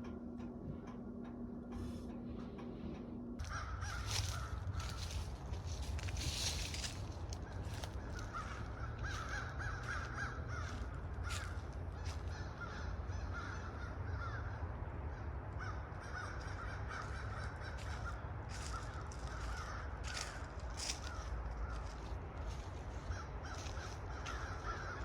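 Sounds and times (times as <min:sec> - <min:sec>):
low rumble: 0:00.0 - 0:25.0
flock of birds calling: 0:03.4 - 0:25.0.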